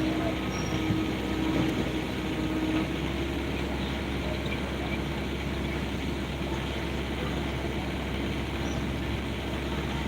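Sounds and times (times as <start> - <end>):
excavator engine humming: 0.0 - 10.0.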